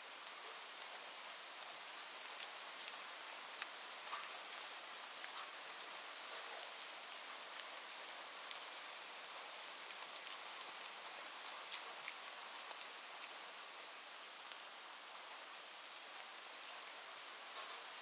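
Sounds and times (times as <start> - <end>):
steady rain falling: 0.0 - 18.0
raindrops ticking: 2.4 - 9.0, 9.6 - 13.4.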